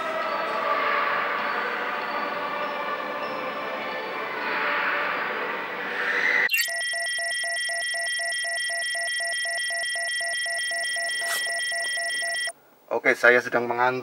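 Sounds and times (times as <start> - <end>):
electronic beeping tones: 6.5 - 12.5.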